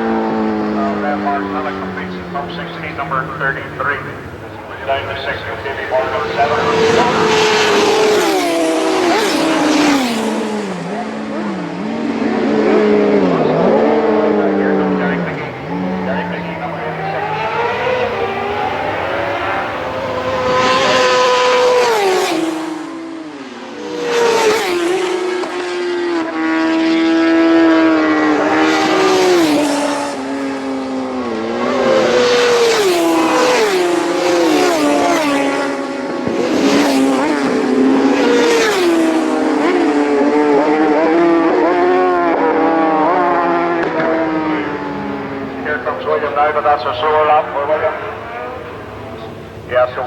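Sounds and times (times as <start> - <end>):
racing motorcycles at full throttle: 0.0 - 50.0.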